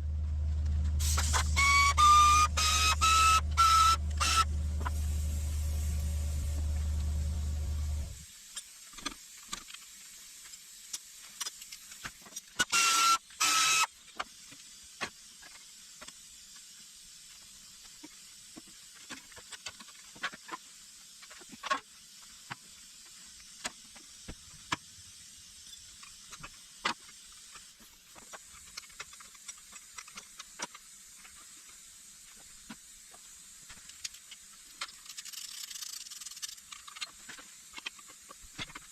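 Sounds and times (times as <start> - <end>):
steady low hum: 0.0 - 8.2
loud hissing bursts: 1.0 - 8.5.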